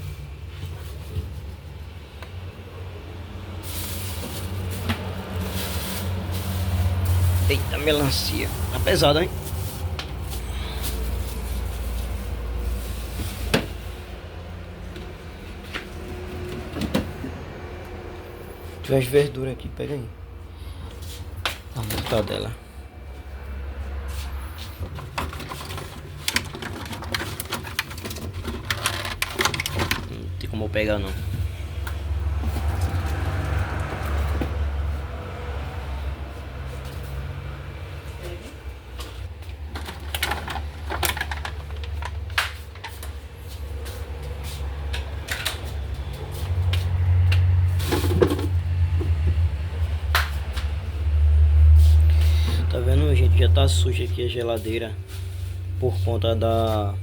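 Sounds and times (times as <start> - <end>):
rustling scrape: 3.6 - 14.1, 24.0 - 30.1, 55.0 - 56.7
food packages clicking and knocking: 24.8 - 30.4, 39.0 - 43.3.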